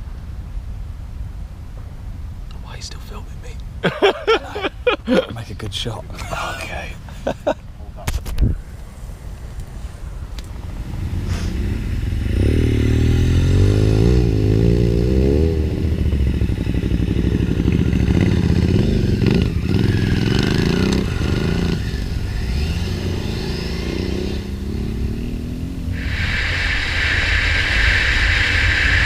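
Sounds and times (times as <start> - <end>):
motorcycle engine revving: 10.5 - 29.0.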